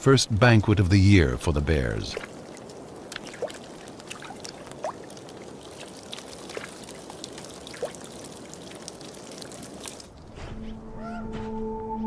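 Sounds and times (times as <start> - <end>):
water trickling and gurgling: 1.1 - 10.4
bubbly plops: 2.1 - 10.2.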